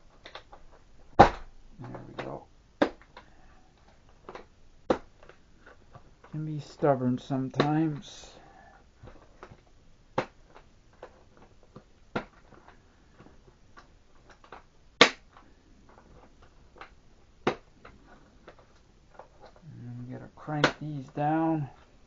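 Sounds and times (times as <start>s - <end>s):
plastic clicks and knocks: 9.0s - 19.6s.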